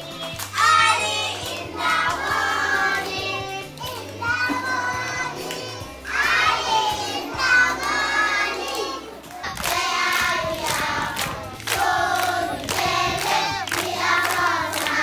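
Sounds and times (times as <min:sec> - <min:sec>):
hand clapping: 0:00.0 - 0:04.7, 0:07.7 - 0:15.0
children singing in chorus: 0:00.0 - 0:15.0.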